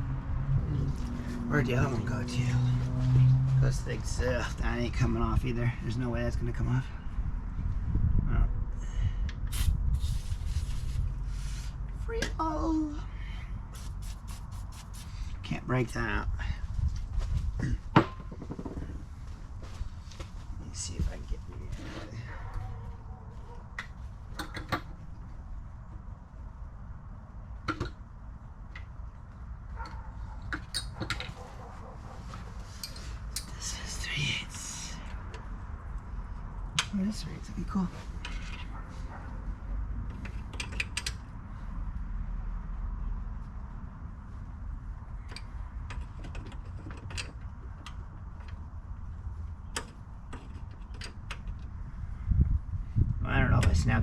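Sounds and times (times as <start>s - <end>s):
hand tools clicking and clinking: 29.8s - 31.4s, 32.8s - 33.5s.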